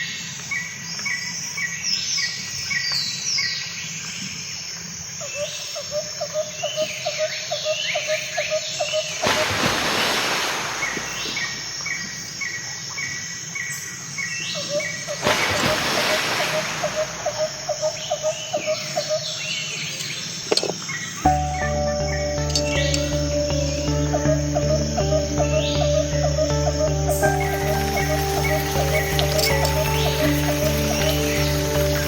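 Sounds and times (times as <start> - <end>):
birds chirping: 6.6 - 32.0
lower repeated bird call: 21.2 - 32.0.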